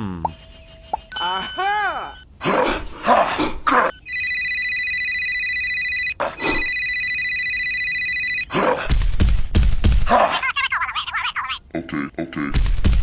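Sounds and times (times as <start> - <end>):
high electronic ringing tone: 1.1 - 2.2, 3.9 - 8.4.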